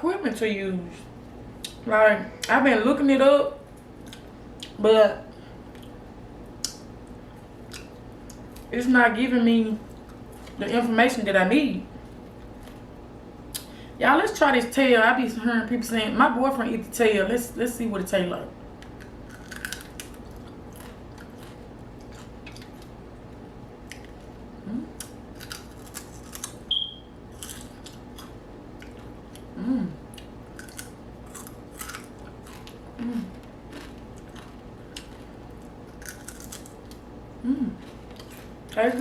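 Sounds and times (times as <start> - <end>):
crisp crunching and wet chewing: 18.8 - 24.4, 25.0 - 26.7, 27.3 - 29.5, 30.1 - 37.1, 37.8 - 39.0.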